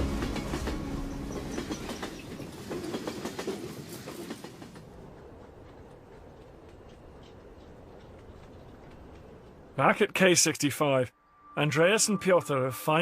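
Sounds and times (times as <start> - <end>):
train clattering over rails: 0.0 - 9.8.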